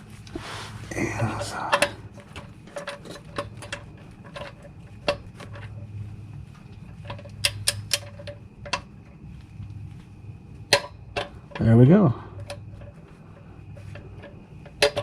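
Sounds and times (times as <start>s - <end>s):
steady low hum: 0.0s - 15.0s
hand tools clicking and tapping: 1.3s - 5.8s, 6.6s - 8.9s, 10.7s - 11.6s, 12.4s - 15.0s.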